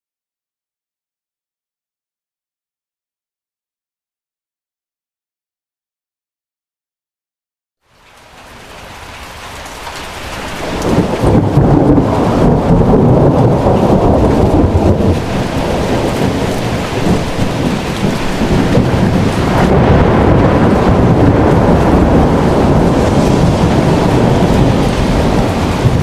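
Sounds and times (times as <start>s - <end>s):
heavy rain pouring: 7.8s - 26.0s.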